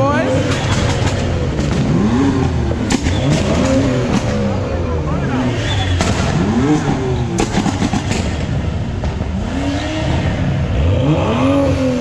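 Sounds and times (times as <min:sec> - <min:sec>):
car engines revving hard: 0:00.0 - 0:12.0
sharp exhaust pops: 0:00.4 - 0:04.6, 0:05.6 - 0:09.5.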